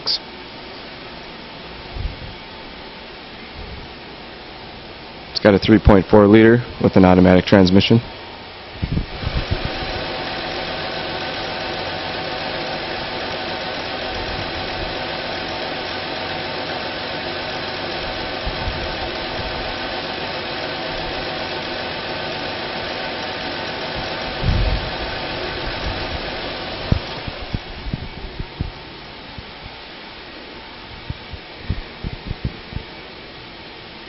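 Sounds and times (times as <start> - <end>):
car engine idling: 9.1 - 27.7.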